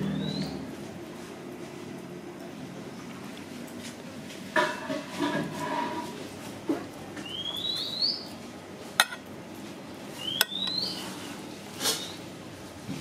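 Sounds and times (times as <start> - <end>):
cutlery clinking on a plate: 9.0 - 9.2.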